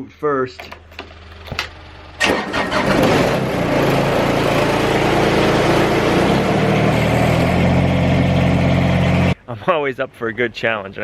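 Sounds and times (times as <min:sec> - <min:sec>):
vehicle engine starting and running: 0:00.6 - 0:09.4.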